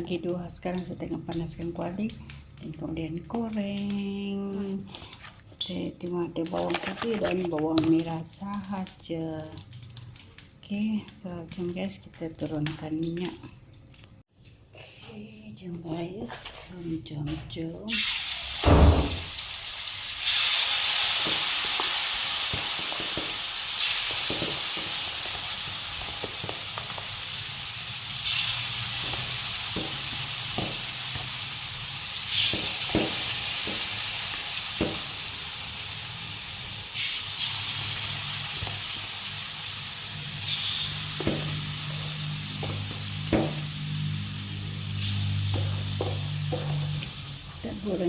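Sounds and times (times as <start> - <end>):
chicken sizzling in hot oil: 17.9 - 48.0.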